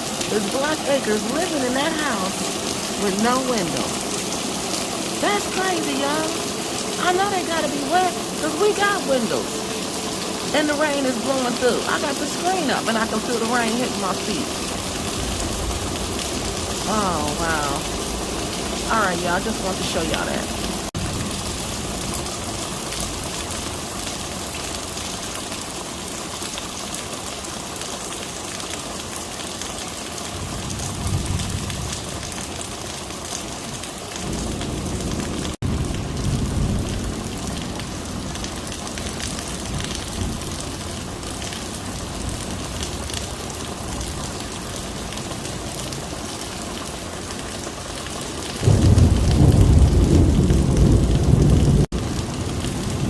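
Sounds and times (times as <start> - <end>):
heavy rain pouring: 0.0 - 53.0
thunder rumbling: 34.2 - 43.1, 48.6 - 53.0.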